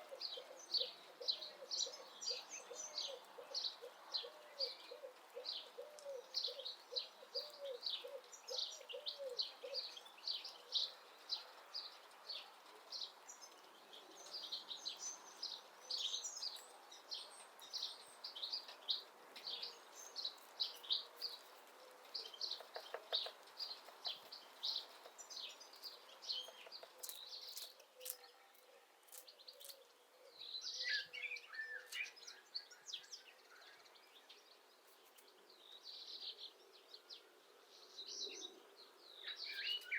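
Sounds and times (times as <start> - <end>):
low cooing call: 0.0 - 10.0
songbirds chirping: 0.0 - 39.9.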